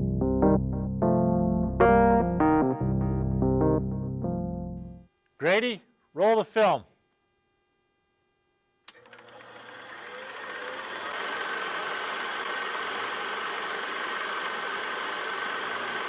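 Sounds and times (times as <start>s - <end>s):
film projector clattering: 8.9s - 16.0s.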